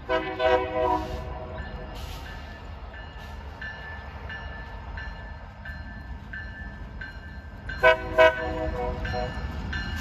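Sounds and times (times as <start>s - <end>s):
locomotive horn chord: 0.0s - 1.6s, 7.8s - 9.4s
diesel locomotive rumble: 0.0s - 10.0s
locomotive bell ringing: 1.4s - 10.0s.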